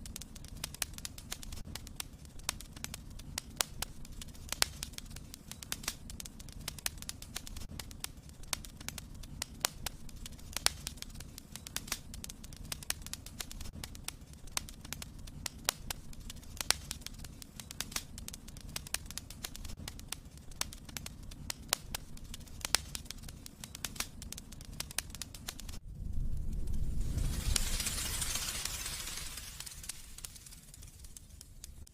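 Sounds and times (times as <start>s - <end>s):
steady hiss: 0.0s - 31.9s
wood fire crackling: 0.0s - 31.9s.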